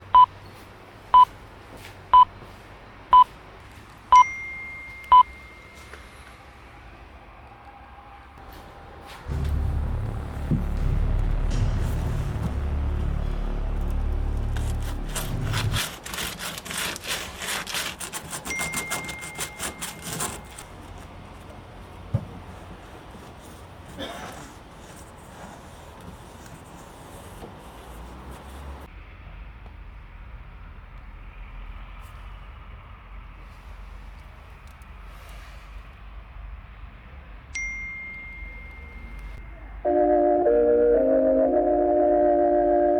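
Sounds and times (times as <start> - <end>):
short electronic beeps: 0.1 - 0.3, 4.1 - 5.8
long higher tone: 8.7 - 15.8, 37.6 - 42.9
quick scraping strokes: 11.5 - 20.7.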